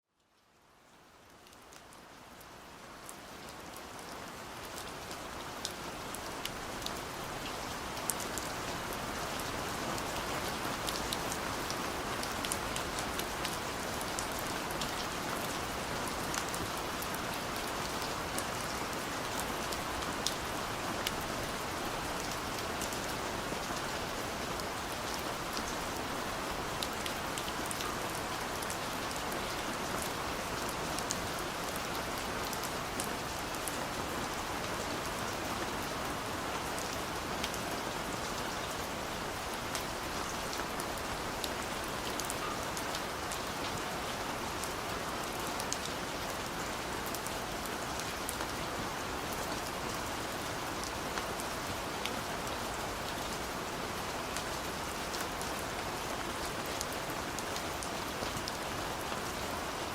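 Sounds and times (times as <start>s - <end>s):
steady rain hiss: 0.1s - 59.9s
raindrops ticking on a surface: 0.2s - 48.6s.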